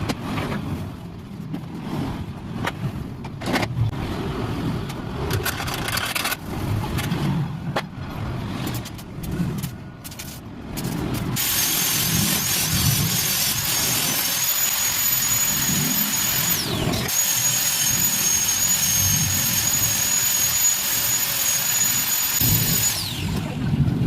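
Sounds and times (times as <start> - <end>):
angle grinder grinding metal: 11.4 - 23.5.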